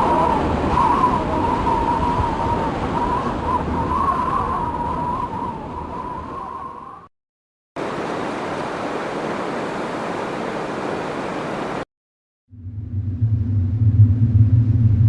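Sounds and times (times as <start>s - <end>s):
howling wind: 0.0s - 7.1s, 7.8s - 11.8s
strong wind rushing: 0.0s - 7.1s.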